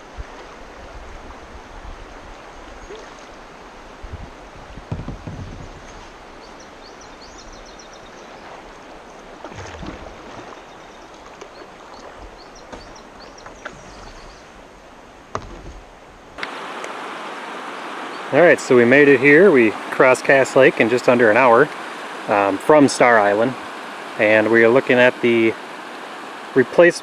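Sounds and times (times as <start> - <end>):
water washing from paddling: 0.0 - 27.0
paddle knocks: 4.8 - 6.1, 12.2 - 14.2
water rushing over rapids: 16.4 - 27.0.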